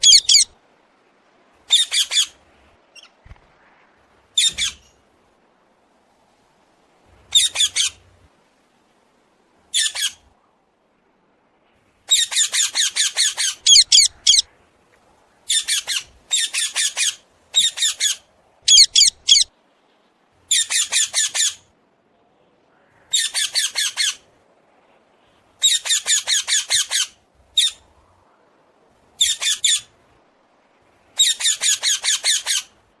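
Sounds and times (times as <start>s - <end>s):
myna harsh squawks: 18.7s - 19.5s.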